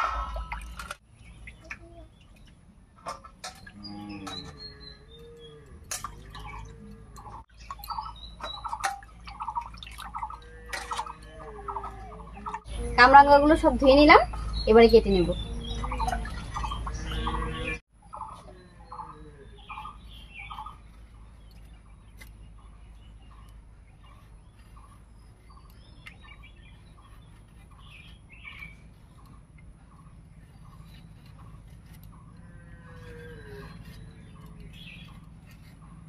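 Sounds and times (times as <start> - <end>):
other birds chirping: 0.0 - 36.0.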